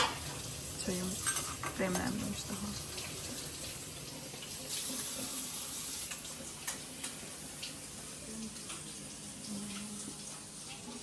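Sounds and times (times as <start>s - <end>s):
dishes clinking: 0.0s - 0.4s, 1.2s - 2.3s
tap water running into sink: 0.0s - 11.0s.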